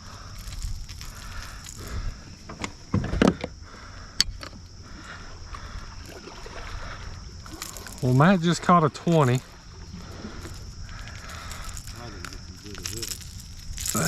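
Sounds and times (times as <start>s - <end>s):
wind and water rumble: 0.0s - 14.0s
knocks and clicks in kayak: 0.6s - 4.7s.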